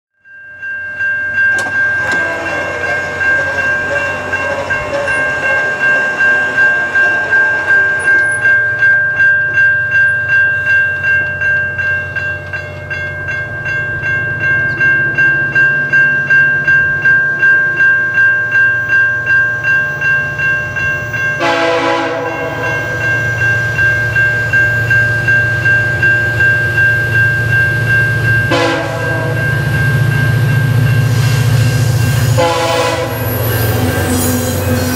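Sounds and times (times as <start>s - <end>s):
bell ringing: 0.2s - 34.9s
locomotive engine rumble: 1.3s - 17.0s
train horn blasts: 2.0s - 5.5s, 21.4s - 23.0s, 28.5s - 29.5s, 32.2s - 34.9s.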